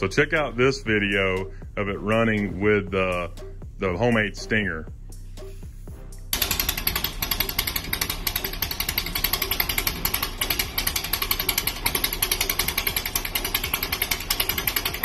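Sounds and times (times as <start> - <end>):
engine running with rapid exhaust pulses: 6.3 - 15.0.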